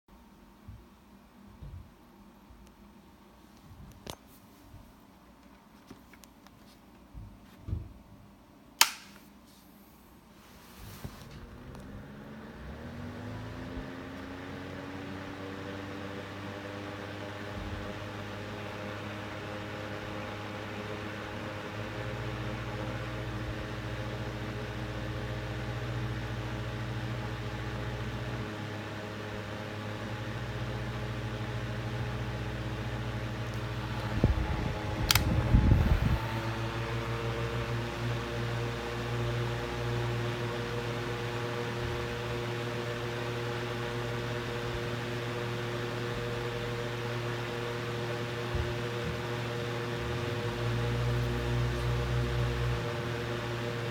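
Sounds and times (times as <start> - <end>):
box fan humming: 8.7 - 53.9
sharp click: 8.8 - 9.3, 35.1 - 35.3.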